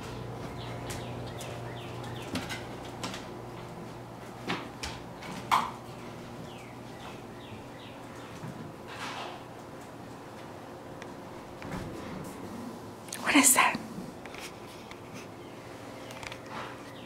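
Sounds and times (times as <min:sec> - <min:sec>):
low steady hum: 0:00.0 - 0:17.0
small birds chirping: 0:00.5 - 0:02.4, 0:06.0 - 0:08.4.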